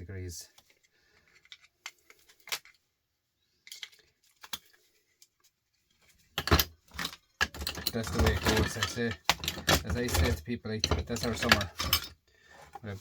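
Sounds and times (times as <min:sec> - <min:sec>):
small parts clicking and tapping: 0:03.6 - 0:05.5, 0:06.4 - 0:12.2.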